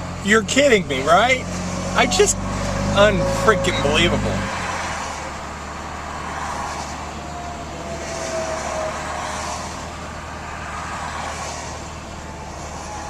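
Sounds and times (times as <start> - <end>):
truck engine and road noise: 0.0 - 13.0
faint whine sliding down: 1.8 - 5.3.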